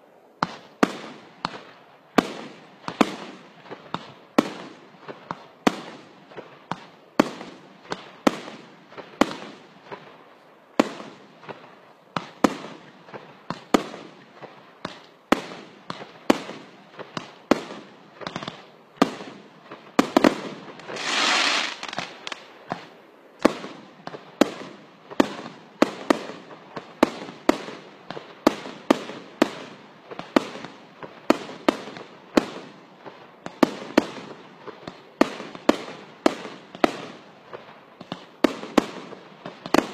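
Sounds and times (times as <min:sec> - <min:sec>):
fireworks bangs: 0:00.4 - 0:10.2, 0:10.8 - 0:39.9
firework hissing burst: 0:20.9 - 0:22.4.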